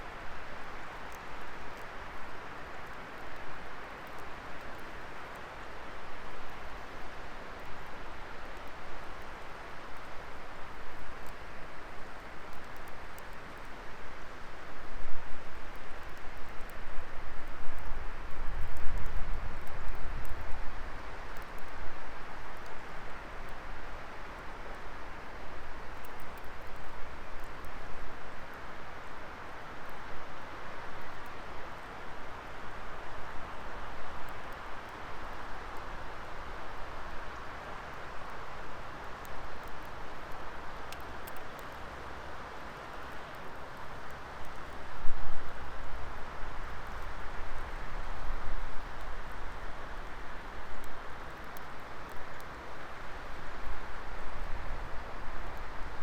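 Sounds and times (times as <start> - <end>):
fire crackles and pops: 0.5 - 30.1, 30.9 - 56.0.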